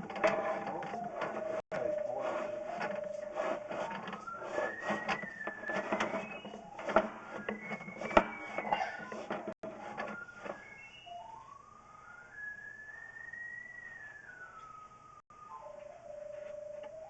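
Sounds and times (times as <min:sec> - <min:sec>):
clicks: 0:00.0 - 0:11.2
pipe locator tone shifting pitch: 0:00.0 - 0:17.0.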